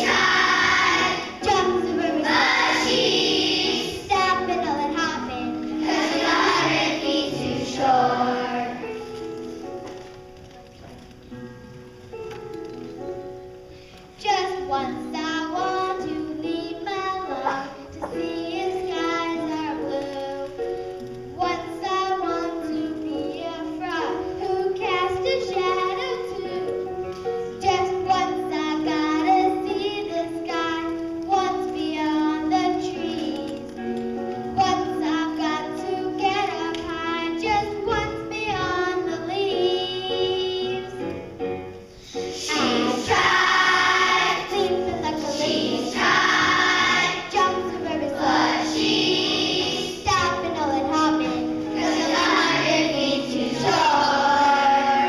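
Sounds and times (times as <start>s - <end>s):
children singing: 0.0s - 9.0s, 42.1s - 55.0s
instrumental accompaniment: 0.0s - 55.0s.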